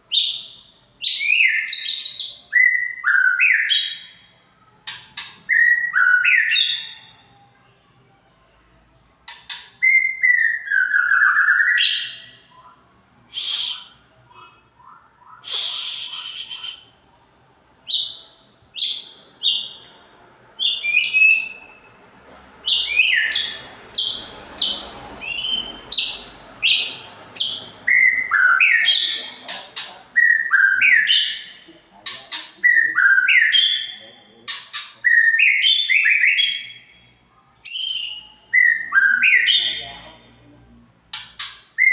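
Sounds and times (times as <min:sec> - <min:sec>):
bird singing whistled phrases: 0:00.1 - 0:04.2, 0:05.2 - 0:07.1, 0:09.5 - 0:12.7, 0:13.3 - 0:16.9, 0:20.6 - 0:21.8, 0:22.6 - 0:29.3, 0:30.2 - 0:31.6, 0:37.6 - 0:39.9.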